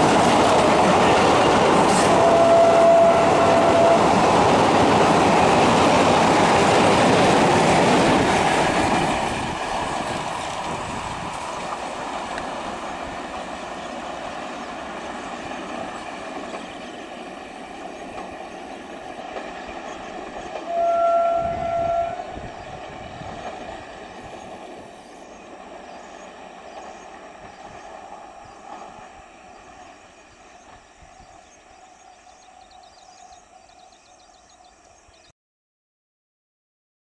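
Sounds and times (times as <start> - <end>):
electric train running on track: 0.0 - 35.1
train horn blast: 1.9 - 4.4, 20.6 - 22.6.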